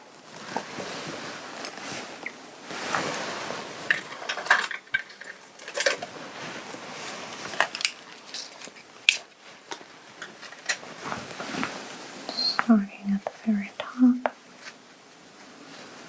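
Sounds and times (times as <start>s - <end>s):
soft rustling: 0.0s - 4.5s, 5.6s - 16.0s.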